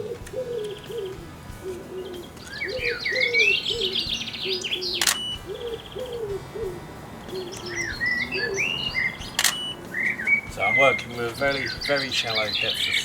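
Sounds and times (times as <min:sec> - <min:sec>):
pigeon cooing: 0:00.0 - 0:13.0
songbird singing high notes: 0:00.0 - 0:13.0
sharp click: 0:04.6 - 0:06.3, 0:09.0 - 0:10.4.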